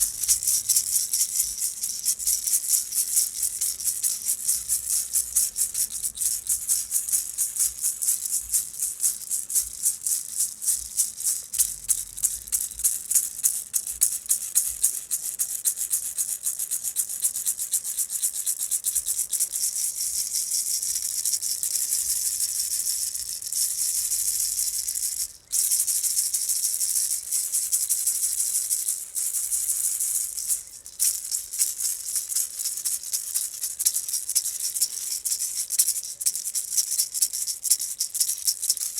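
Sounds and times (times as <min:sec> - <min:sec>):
hand rattle shaking: 0:00.0 - 0:38.9.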